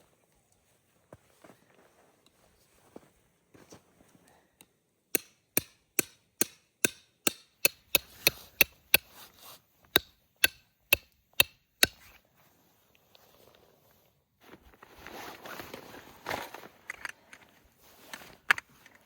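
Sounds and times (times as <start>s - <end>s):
tent peg being hammered: 5.1s - 9.3s, 10.0s - 12.1s.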